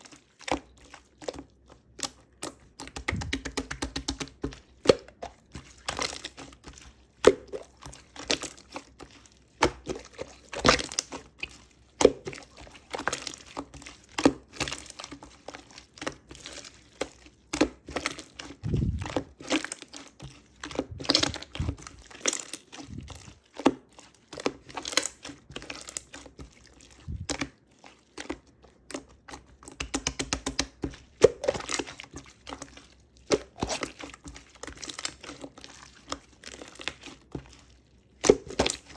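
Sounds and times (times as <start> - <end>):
slime crackling and popping: 2.0 - 5.2, 17.5 - 27.6, 28.9 - 32.6, 33.2 - 37.1, 38.1 - 38.9.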